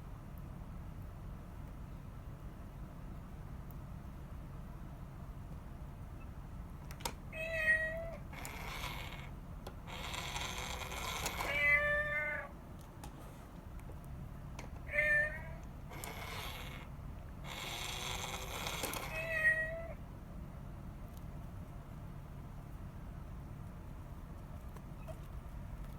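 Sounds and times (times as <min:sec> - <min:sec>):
cat meowing: 0:07.3 - 0:09.3, 0:11.0 - 0:12.5, 0:14.8 - 0:16.9, 0:18.6 - 0:20.0.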